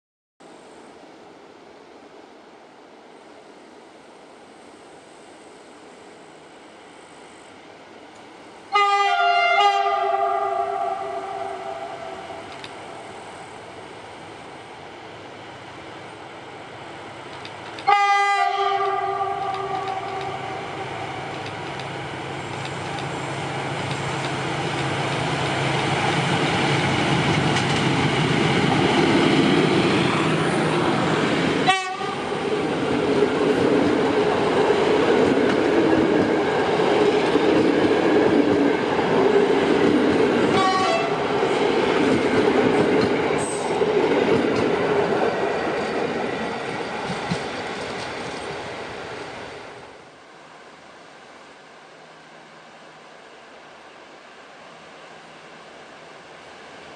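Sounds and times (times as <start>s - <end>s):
train horn: 8.7s - 12.4s, 17.9s - 21.4s, 31.6s - 32.3s, 40.5s - 41.2s
train wheels clattering: 41.6s - 48.6s.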